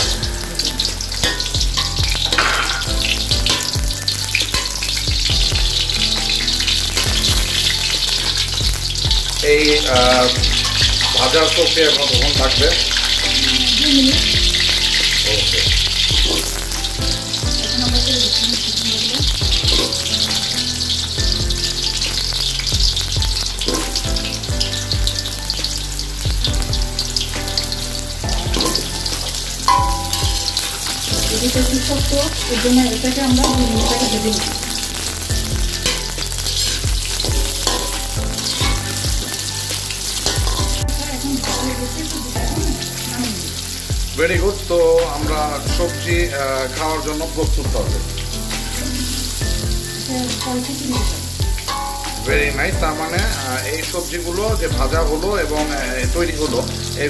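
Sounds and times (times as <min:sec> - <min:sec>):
potatoes sizzling in oil: 0:00.0 - 0:57.0.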